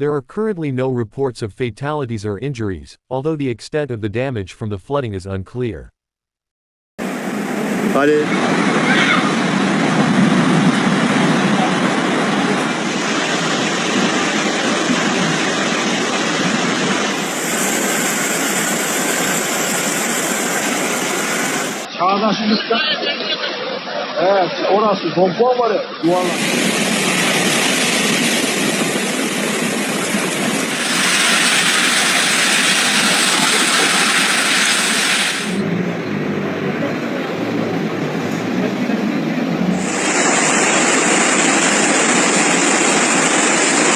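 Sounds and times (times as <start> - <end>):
floodwater rushing: 17.1 - 21.9, 30.6 - 35.6, 39.8 - 42.1.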